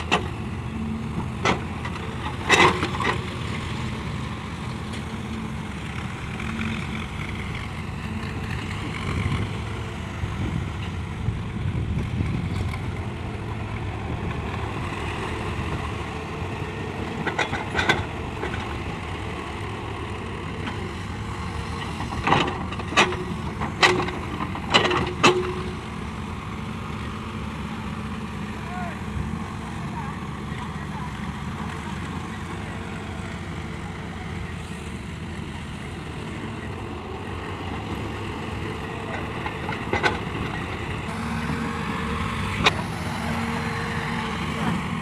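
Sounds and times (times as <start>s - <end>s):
heavy diesel machinery running: 0.0s - 45.0s.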